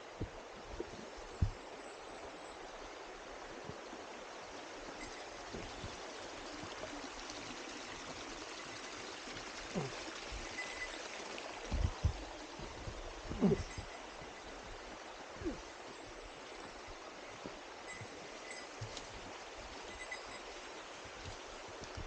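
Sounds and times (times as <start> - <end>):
running water: 0.0 - 22.0
dull low thumps: 11.7 - 13.9.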